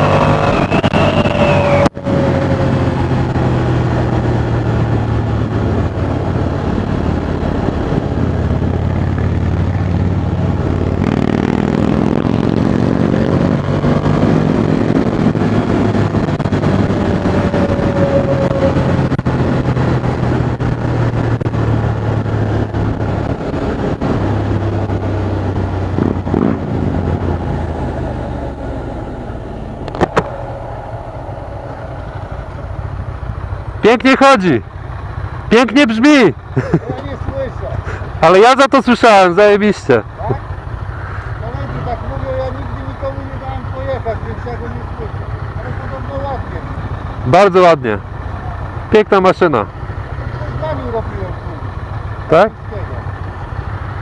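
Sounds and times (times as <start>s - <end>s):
wind rush on microphone: 0.0s - 28.2s
motorcycle engine running: 0.0s - 38.3s, 39.2s - 54.0s.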